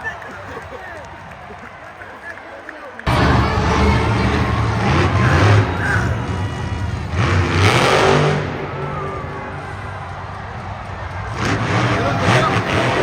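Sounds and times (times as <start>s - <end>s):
monster truck engine revving: 3.1s - 13.0s.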